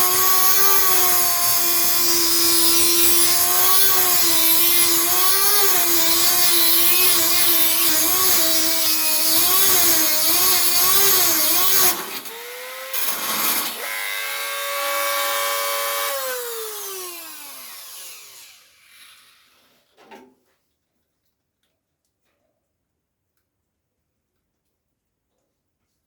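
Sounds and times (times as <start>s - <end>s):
rotary tool whining: 0.0s - 19.6s.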